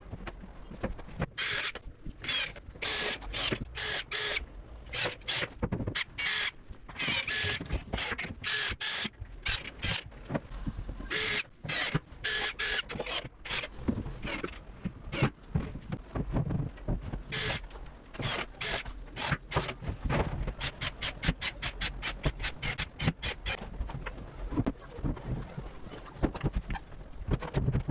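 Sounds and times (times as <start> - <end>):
power tool motor whirring: 1.4 - 10.0, 11.1 - 13.7, 18.2 - 19.7.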